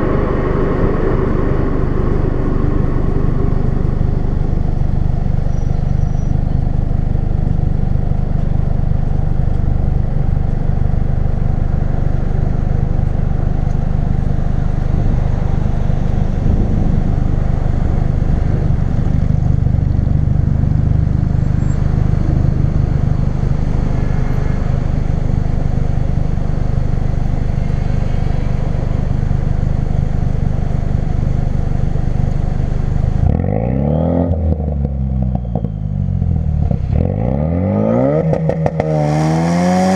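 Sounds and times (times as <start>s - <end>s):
car engine droning while driving: 0.0s - 39.9s.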